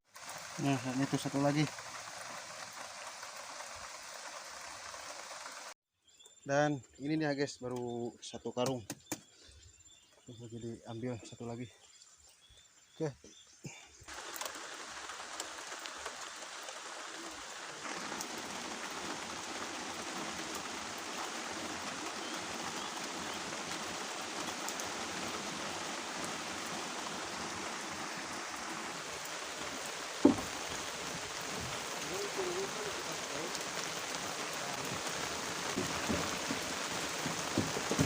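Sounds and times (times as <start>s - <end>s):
rain hissing: 0.0s - 5.8s, 10.4s - 38.0s
rushing floodwater: 0.0s - 5.8s, 14.1s - 38.0s.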